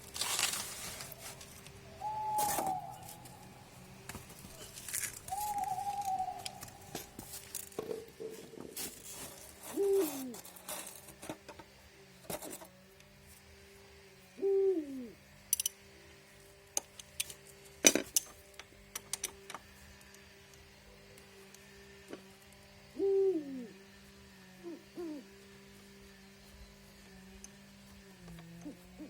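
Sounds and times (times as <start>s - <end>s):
steady low hum: 0.0s - 29.0s
bird hooting: 1.0s - 7.2s, 9.7s - 10.4s, 14.4s - 15.2s, 22.9s - 23.9s, 24.6s - 25.4s, 28.5s - 29.0s.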